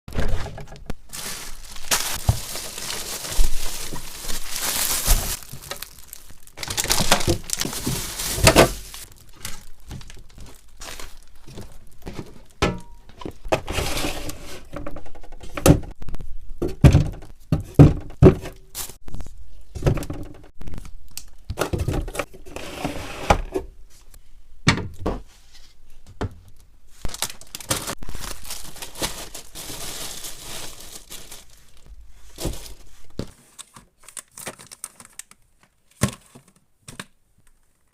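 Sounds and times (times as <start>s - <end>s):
plastic packaging crinkling: 0.9s - 12.6s, 27.0s - 36.6s.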